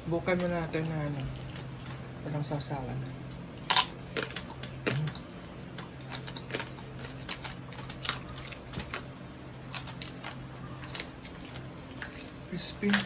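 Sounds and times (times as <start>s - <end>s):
crispy skin crunching: 3.6s - 13.0s.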